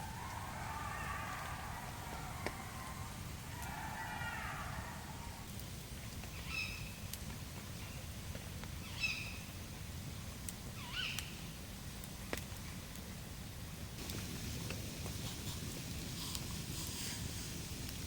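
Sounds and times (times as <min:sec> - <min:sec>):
animal calling: 0:00.0 - 0:05.4.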